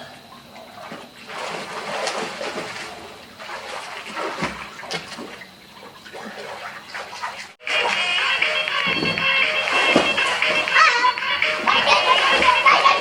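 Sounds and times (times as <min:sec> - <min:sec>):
water splashing in a pool: 0:00.0 - 0:08.1, 0:09.4 - 0:13.0
dull thump: 0:08.8 - 0:10.7.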